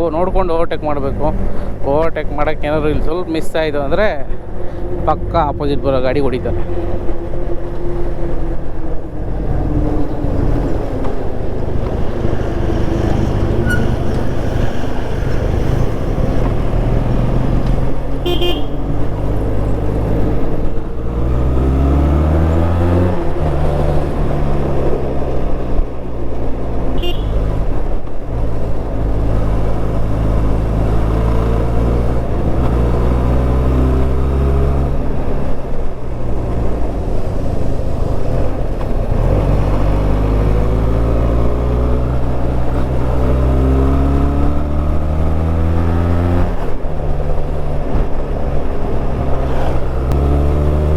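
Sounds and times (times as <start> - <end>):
motorcycle engine revving: 0.9 - 50.9
motorcycle horn toots: 18.2 - 18.9, 27.0 - 27.5
wind rush: 35.0 - 40.4.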